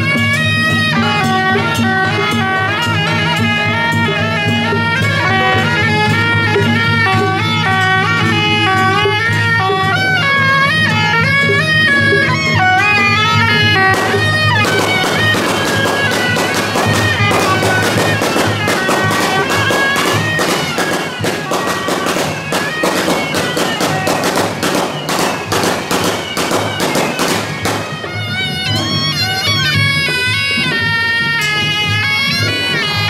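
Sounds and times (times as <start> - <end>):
shawm band playing shrill melody: 0.0 - 33.0
firecrackers cracking: 13.7 - 28.2.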